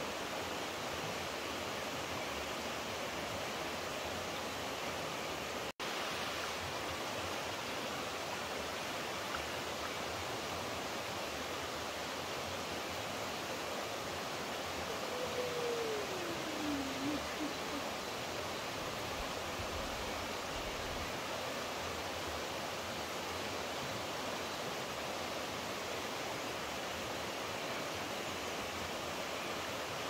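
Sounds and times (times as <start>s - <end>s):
flowing water rushing: 0.0s - 30.0s
faint tone gliding downward: 14.9s - 17.9s.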